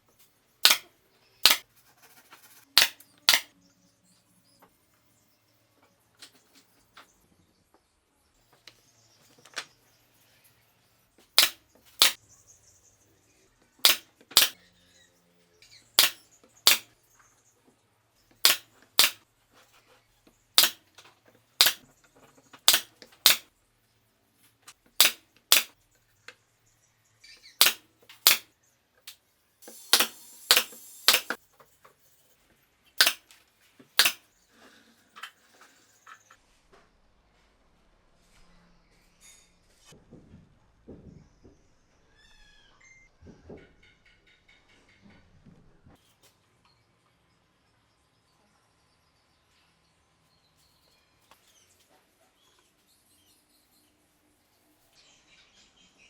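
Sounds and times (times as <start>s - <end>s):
nail gun snapping into wood: 0.6s - 1.6s, 2.8s - 3.5s, 11.4s - 12.2s, 13.8s - 14.6s, 16.0s - 16.9s, 18.4s - 19.2s, 20.6s - 20.8s, 21.6s - 21.8s, 22.6s - 23.5s, 25.0s - 25.8s, 27.6s - 28.5s, 29.7s - 31.4s, 33.0s - 33.2s, 34.0s - 34.2s
short air hiss: 29.6s - 31.4s.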